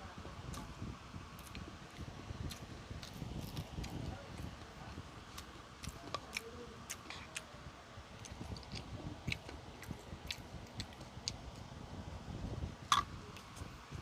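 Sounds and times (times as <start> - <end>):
person chewing food: 1.4 - 7.5, 8.1 - 11.7.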